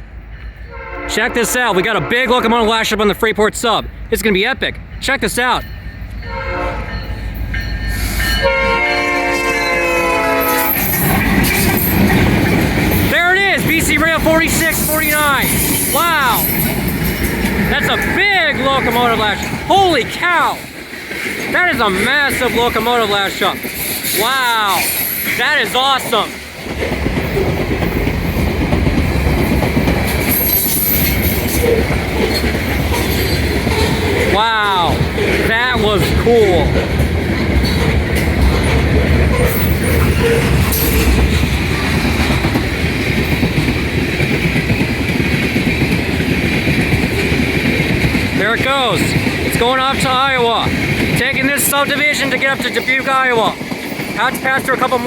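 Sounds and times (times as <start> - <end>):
diesel locomotive rumble: 0.0 - 55.0
locomotive air horn: 0.7 - 2.7, 6.2 - 7.0, 8.4 - 11.0
high wheel squeal: 9.9 - 12.2, 12.9 - 20.1, 21.8 - 25.6, 30.2 - 34.9, 37.6 - 41.2.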